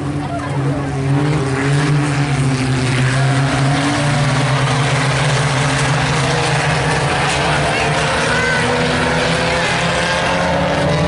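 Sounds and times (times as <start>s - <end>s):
race car engines at high revs: 0.0s - 11.0s.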